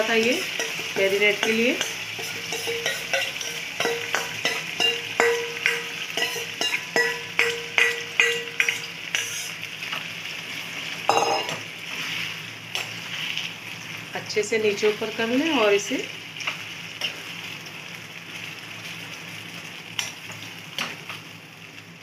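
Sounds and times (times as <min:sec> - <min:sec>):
chicken sizzling in hot oil: 0:00.0 - 0:22.0
steel spoon scraping metal bowl: 0:00.6 - 0:03.6, 0:08.6 - 0:09.5.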